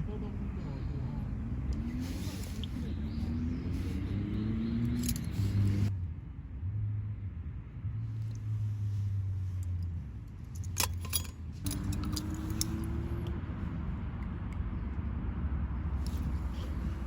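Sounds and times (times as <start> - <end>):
steady low rumble: 0.0 - 17.0
metallic clinking and jingling: 4.8 - 5.9, 9.6 - 13.3.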